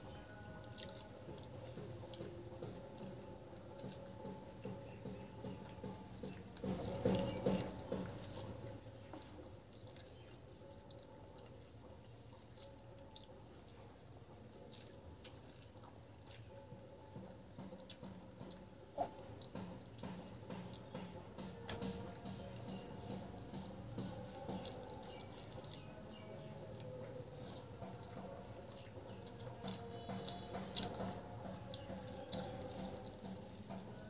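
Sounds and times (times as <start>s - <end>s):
soft chewing: 6.2s - 16.7s, 17.6s - 34.0s.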